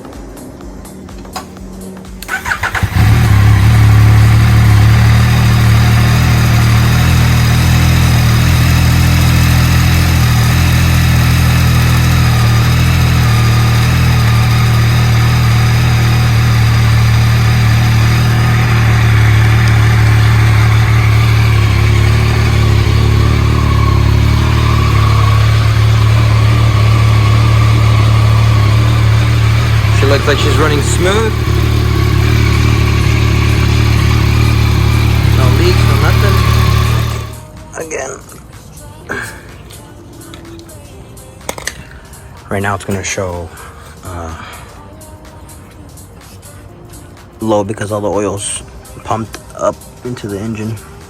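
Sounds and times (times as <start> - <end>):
motorcycle engine starting and idling: 1.0 - 37.6.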